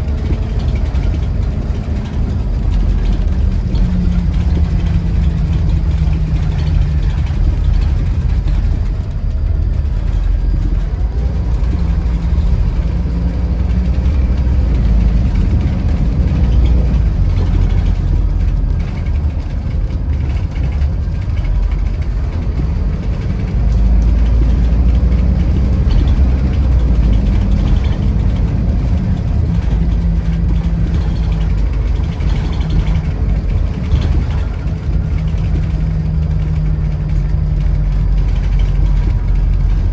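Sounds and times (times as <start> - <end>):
coach diesel engine drone: 0.0 - 39.9.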